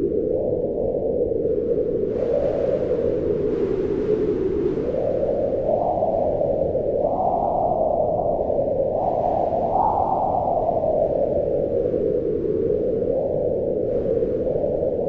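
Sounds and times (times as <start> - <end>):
howling wind: 0.0 - 15.0.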